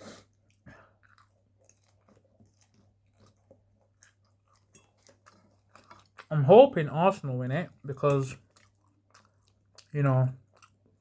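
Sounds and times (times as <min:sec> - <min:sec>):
chewing mouth clicks: 0:00.4 - 0:06.3, 0:08.1 - 0:11.0.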